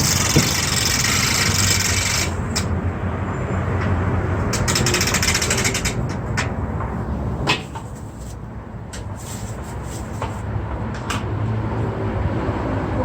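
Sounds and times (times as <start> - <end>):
hand crane clicking: 0.0 - 2.7, 4.5 - 6.5
hand crane rasping scrape: 0.0 - 2.7, 4.6 - 6.1, 7.6 - 8.4, 9.1 - 10.5.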